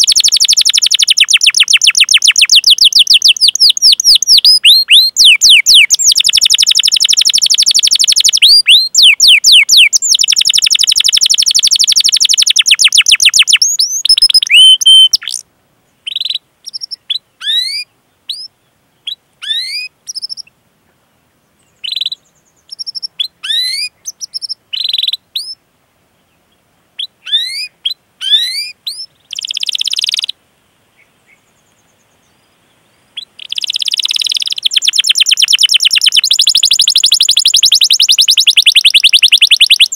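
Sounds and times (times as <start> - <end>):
canary chirps and calls: 0.0 - 15.4, 16.0 - 20.5, 21.8 - 25.6, 27.0 - 30.4, 33.2 - 39.9
canary trilling: 0.0 - 15.4, 27.0 - 30.3, 33.2 - 39.9.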